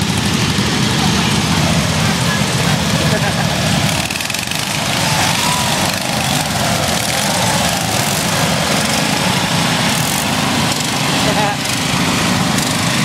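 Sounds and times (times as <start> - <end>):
small tractor engines running: 0.0 - 13.0.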